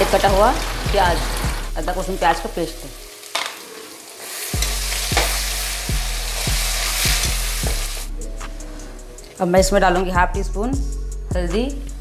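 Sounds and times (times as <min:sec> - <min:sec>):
paste sizzling in hot oil: 0:00.0 - 0:08.1.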